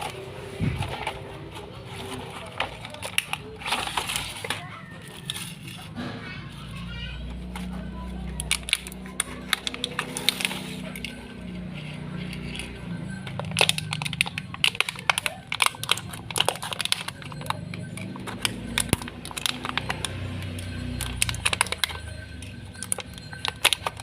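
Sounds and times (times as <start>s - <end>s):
faint music: 0.0s - 24.0s
plastic toy clicking and crackling: 0.0s - 24.0s.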